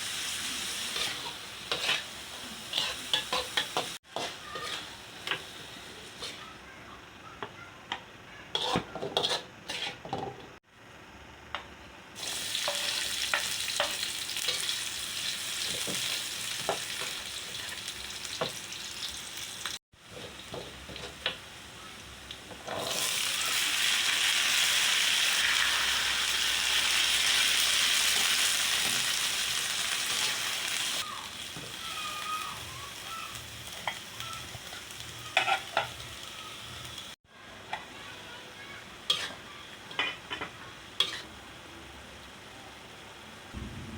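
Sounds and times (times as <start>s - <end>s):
food sizzling in hot oil: 0.0s - 6.6s, 12.2s - 37.2s.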